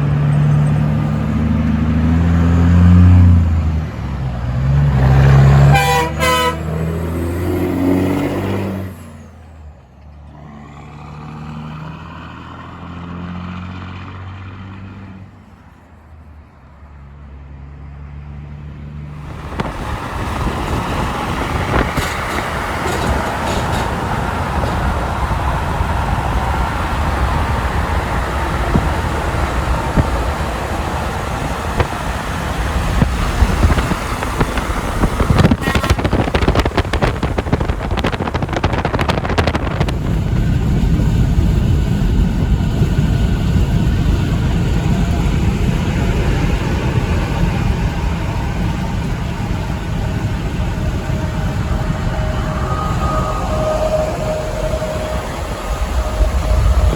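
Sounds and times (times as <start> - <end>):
heavy trucks passing: 0.0 - 56.9
deep steady rumble: 19.1 - 56.9.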